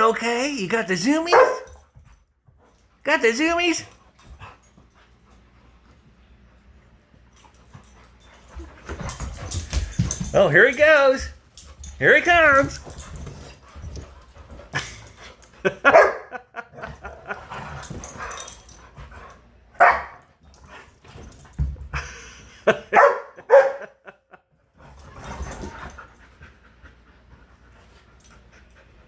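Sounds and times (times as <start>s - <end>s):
dogs barking: 1.3s - 1.7s, 15.8s - 16.4s, 19.8s - 20.2s, 22.9s - 23.9s
knocks and scuffling: 7.4s - 15.7s, 16.8s - 22.1s, 24.8s - 26.5s.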